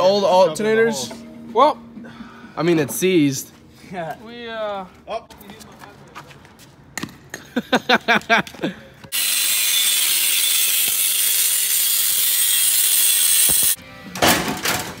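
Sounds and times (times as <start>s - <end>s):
metal cut-off tool hissing: 9.1s - 13.8s.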